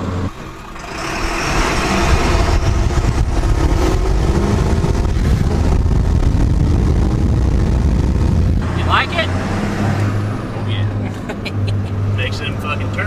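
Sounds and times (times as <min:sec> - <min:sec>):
diesel truck engine rumble: 0:00.0 - 0:13.0.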